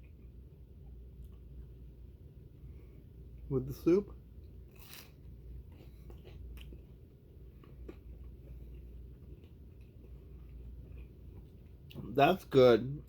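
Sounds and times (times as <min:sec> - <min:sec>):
low steady hum: 0:00.0 - 0:13.0
person chewing: 0:04.5 - 0:12.0.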